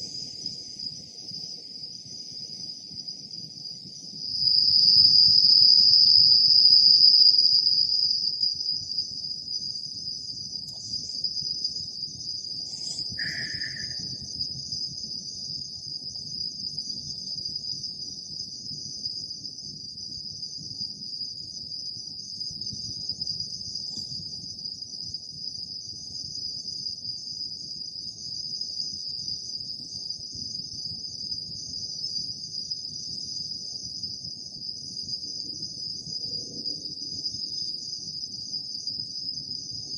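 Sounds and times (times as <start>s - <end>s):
insects chirping: 0.0s - 39.9s
short lower-pitched call: 13.2s - 14.1s.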